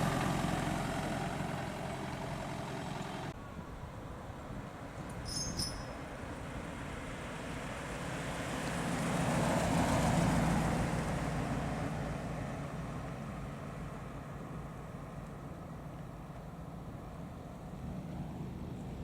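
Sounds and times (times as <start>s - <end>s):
car driving past: 6.7s - 15.1s.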